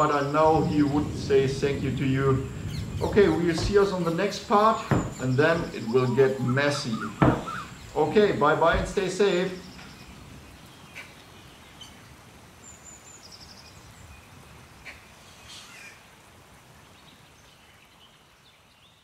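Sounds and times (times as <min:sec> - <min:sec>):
high bird chirps: 0:02.4 - 0:08.1.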